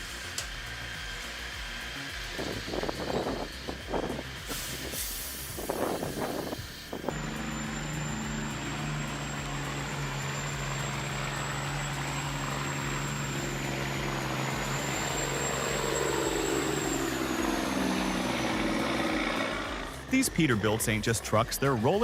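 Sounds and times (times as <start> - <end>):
heavy vehicle engine running: 0.0 - 22.0.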